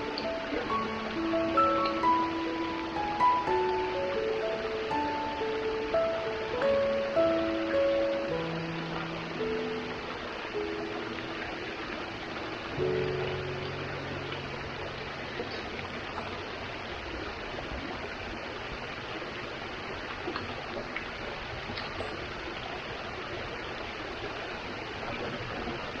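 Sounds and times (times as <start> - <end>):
music chord: 0.0 - 15.5
running water rushing: 0.0 - 26.0.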